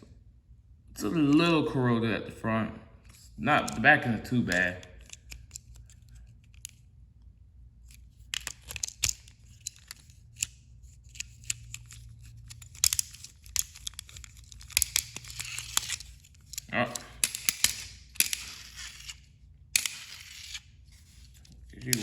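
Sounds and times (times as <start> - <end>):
plastic clicks and scrapes: 4.4 - 6.9, 7.8 - 22.0.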